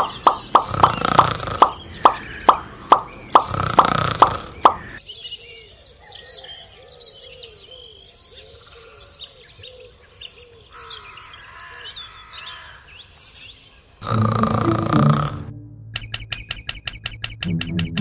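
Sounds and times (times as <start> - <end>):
low arched bird calls: 0.0 - 13.2
birds chirping: 0.0 - 18.0.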